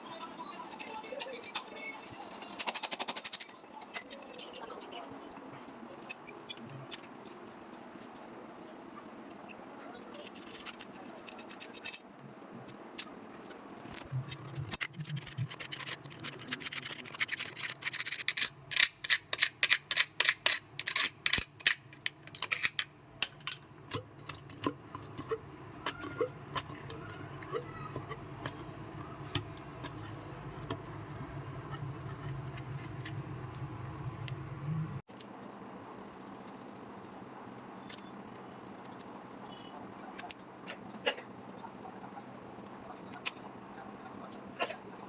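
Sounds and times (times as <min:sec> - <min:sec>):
low steady hum: 0:20.8 - 0:45.0.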